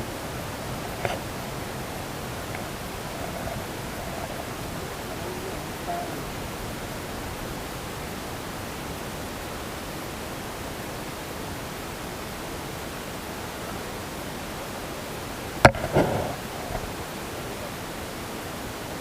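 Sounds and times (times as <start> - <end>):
rushing outdoor noise: 0.0 - 19.0
sharp knock: 15.6 - 16.4.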